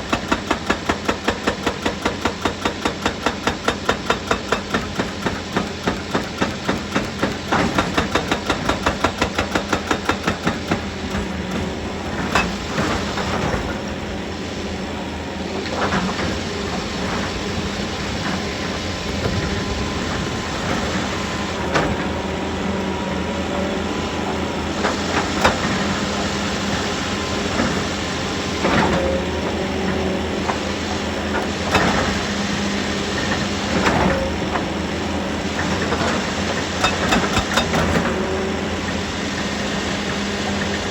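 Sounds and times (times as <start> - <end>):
knocks and clanks of rock and metal: 0.0 - 14.0, 35.6 - 38.3
heavy machinery engine hum: 0.0 - 40.9
fast even hammering: 0.1 - 12.6.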